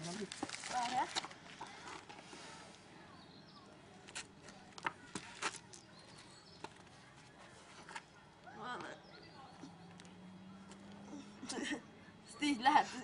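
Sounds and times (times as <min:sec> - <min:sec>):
birds chirping: 0:02.4 - 0:04.0, 0:05.6 - 0:07.1, 0:08.5 - 0:12.6.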